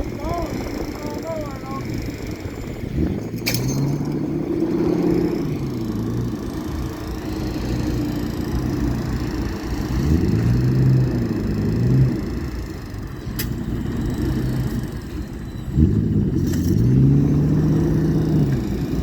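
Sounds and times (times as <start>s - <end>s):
truck engine revving: 0.0s - 19.0s
sharp click: 13.4s - 13.6s.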